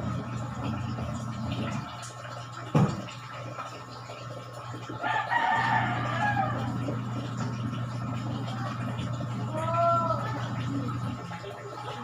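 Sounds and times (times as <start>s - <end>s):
rooster crowing: 5.0s - 6.9s.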